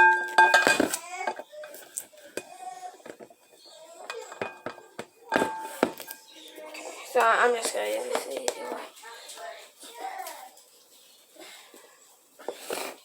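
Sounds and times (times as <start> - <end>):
kitchenware clinking: 0.0 - 8.8.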